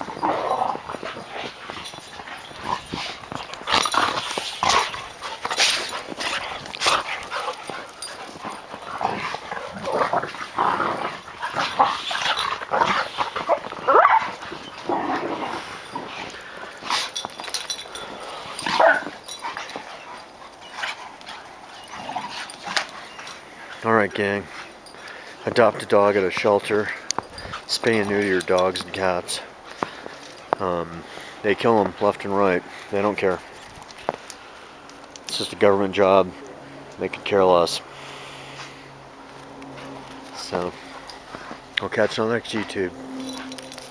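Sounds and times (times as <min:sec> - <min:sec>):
dogs yipping and whimpering: 0:00.0 - 0:23.8, 0:42.6 - 0:43.9.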